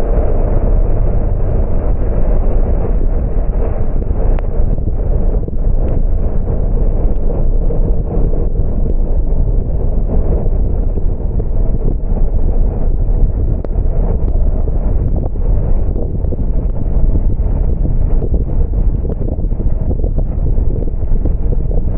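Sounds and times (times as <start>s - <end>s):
wind buffeting microphone: 0.0s - 21.9s.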